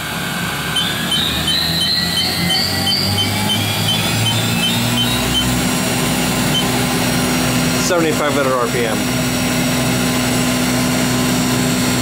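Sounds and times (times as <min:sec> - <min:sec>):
machine spindle high whine: 0:00.0 - 0:12.0
steady low hum: 0:00.0 - 0:12.0
faint regular chirp: 0:00.8 - 0:05.6, 0:06.5 - 0:06.8.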